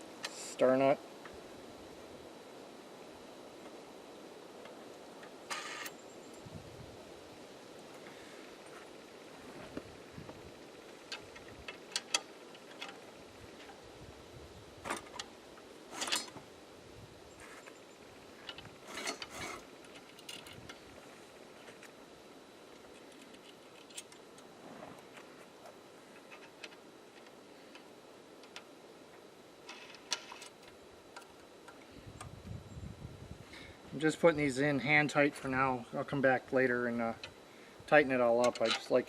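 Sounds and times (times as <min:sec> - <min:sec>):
metal bolts and nuts clinking: 0:15.9 - 0:16.4, 0:38.4 - 0:38.9.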